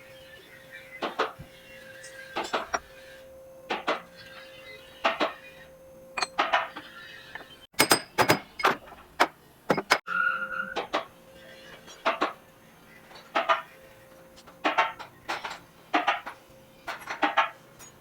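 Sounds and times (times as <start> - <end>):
metallic clinks and clunks: 6.2 - 6.7, 7.4 - 9.0, 9.7 - 10.0.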